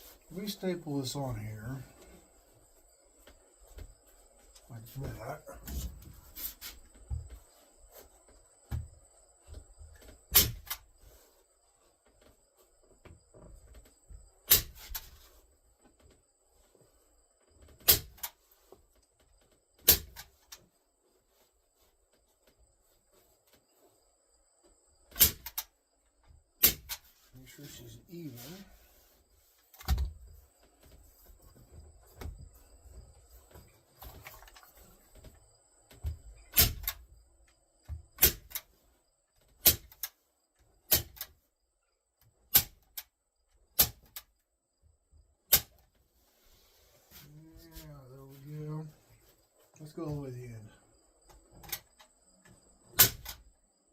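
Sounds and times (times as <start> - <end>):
staple gun firing: 53.0 - 53.4.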